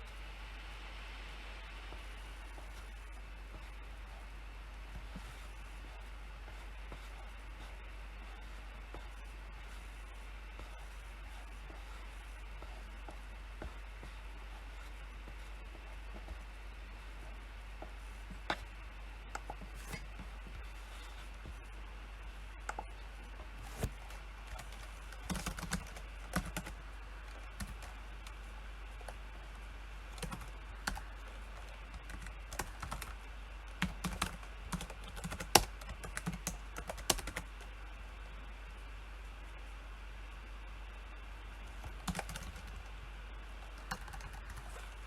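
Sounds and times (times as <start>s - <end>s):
faint low hum: 0.0s - 45.0s
typing on keyboard: 24.5s - 28.0s, 30.2s - 37.6s, 41.8s - 42.9s, 43.7s - 45.0s.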